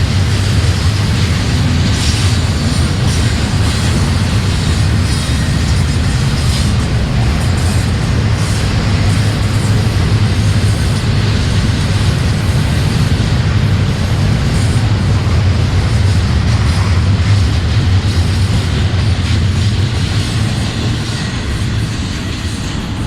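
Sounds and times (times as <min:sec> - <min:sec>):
freight train rumbling past: 0:00.0 - 0:23.0.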